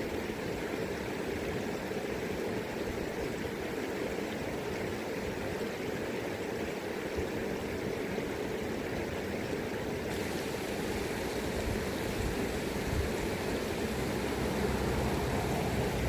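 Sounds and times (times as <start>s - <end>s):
river current rushing: 9.8s - 16.0s
wind rumble on microphone: 11.4s - 16.0s.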